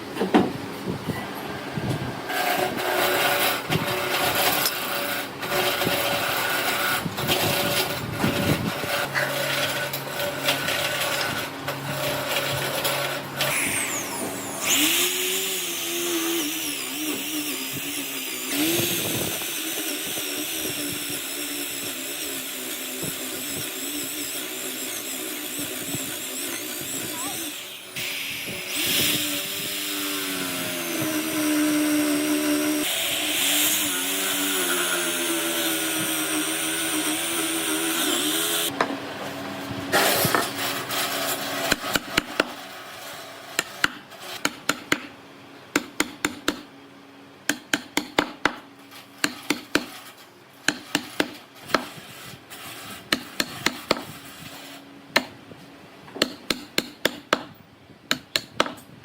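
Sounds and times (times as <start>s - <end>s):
power tool working wood: 2.3s - 38.8s
hammer knocks on wood: 58.1s - 58.8s.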